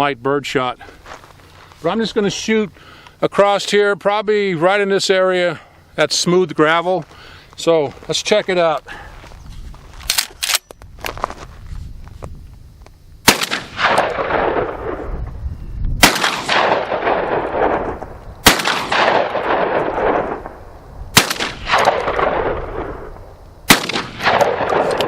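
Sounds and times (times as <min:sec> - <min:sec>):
shotgun action cycling: 0:10.1 - 0:10.7, 0:18.4 - 0:20.4, 0:23.7 - 0:25.0
shotgun shots with rolling echo: 0:13.2 - 0:15.1, 0:16.0 - 0:25.0.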